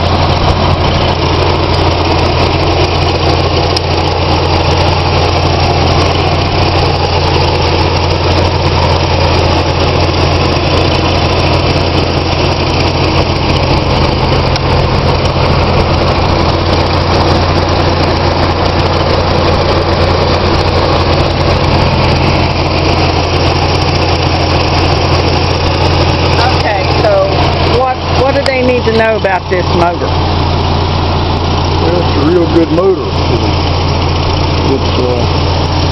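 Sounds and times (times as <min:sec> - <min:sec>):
car engine idling: 0:00.0 - 0:35.9.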